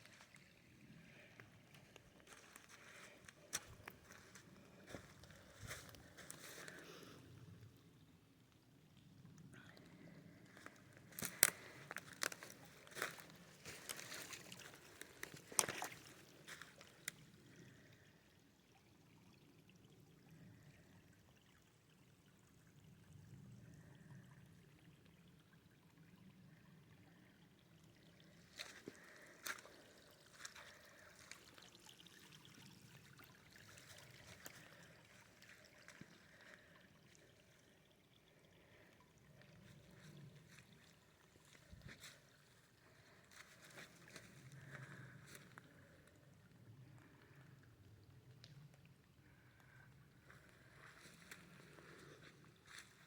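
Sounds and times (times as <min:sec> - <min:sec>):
water trickling: 0:00.0 - 0:53.0
water splashes: 0:09.9 - 0:17.8, 0:28.2 - 0:46.0.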